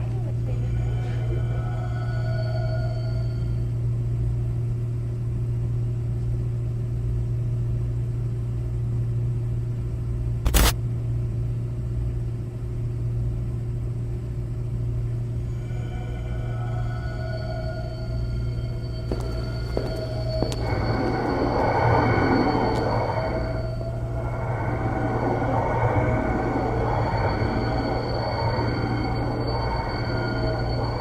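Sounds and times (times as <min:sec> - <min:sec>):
low hum: 0:00.0 - 0:07.6, 0:10.4 - 0:31.0
sharp click: 0:10.5 - 0:10.8.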